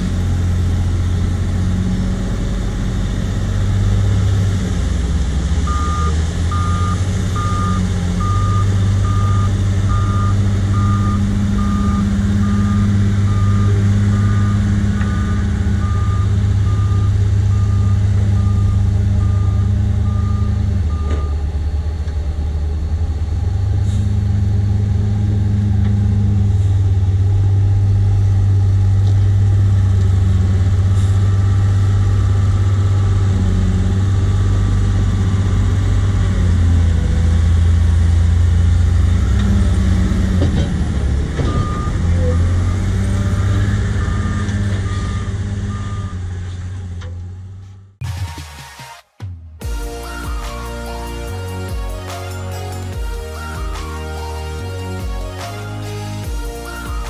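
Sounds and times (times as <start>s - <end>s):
diesel engine running hard: 0.0s - 48.1s, 49.6s - 57.0s
reversing alarm beeping: 5.6s - 21.5s, 41.4s - 46.3s.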